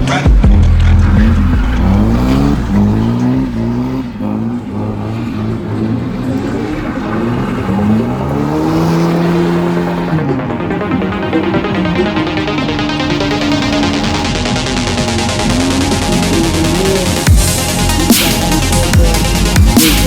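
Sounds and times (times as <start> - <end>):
heavy deep bass: 0.0 - 3.8, 10.4 - 20.0
car engine revving: 0.0 - 20.0
tyres skidding: 0.0 - 20.0.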